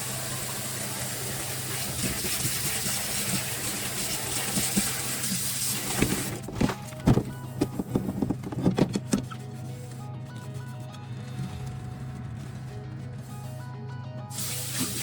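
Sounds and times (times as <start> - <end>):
kitchen tap running into sink: 0.0 - 6.4.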